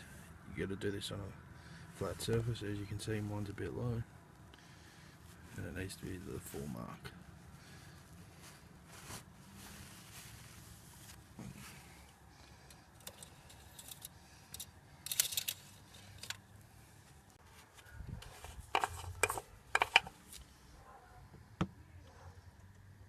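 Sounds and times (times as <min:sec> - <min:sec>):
engine parts clicking and rattling: 0:11.4 - 0:16.6, 0:18.2 - 0:20.4.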